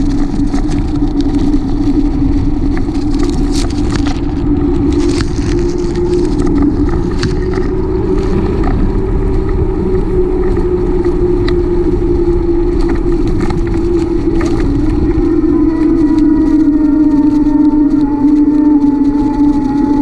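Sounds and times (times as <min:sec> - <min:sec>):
small clicks and rattles: 0:00.0 - 0:09.6
bicycle road rumble: 0:00.0 - 0:20.0
wind noise on microphone: 0:00.0 - 0:20.0.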